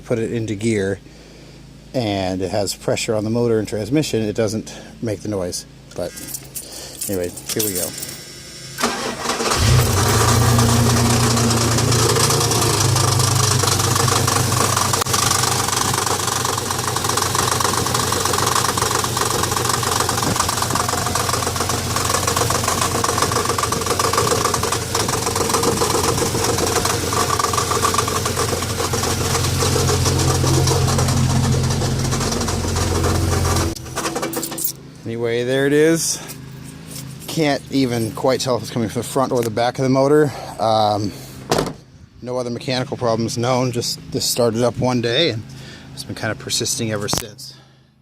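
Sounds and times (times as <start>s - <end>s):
engine cranking and starting: 8.6s - 34.8s
engine idling: 8.7s - 34.8s
engine knocking: 10.9s - 33.8s.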